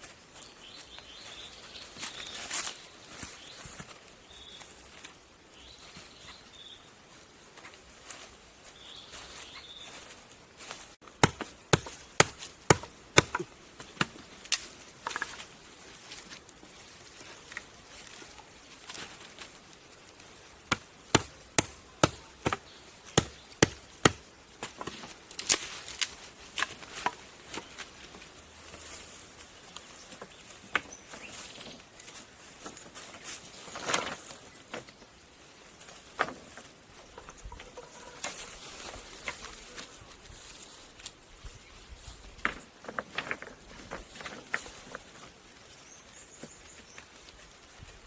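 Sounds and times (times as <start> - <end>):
faint birdsong: 0.0 - 11.0, 13.0 - 25.2, 26.8 - 48.0
blade chopping wood: 11.1 - 15.2, 20.7 - 25.6.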